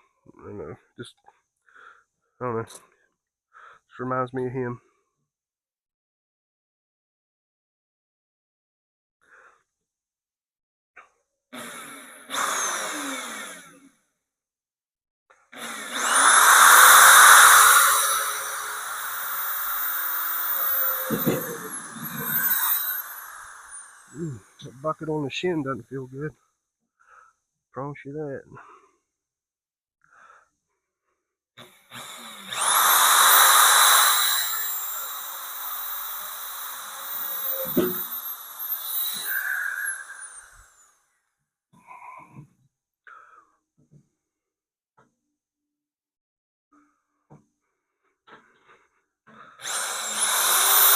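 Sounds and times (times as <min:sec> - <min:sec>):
electric drill boring into steel: 0:11.6 - 0:13.8, 0:15.6 - 0:24.2, 0:31.6 - 0:40.9, 0:49.6 - 0:50.9.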